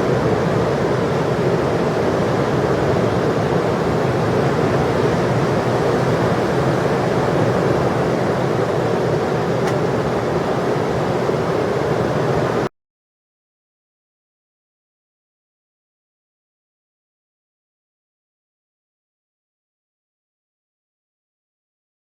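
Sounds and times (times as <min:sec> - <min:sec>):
heavy ocean surf roaring: 0:00.0 - 0:12.7.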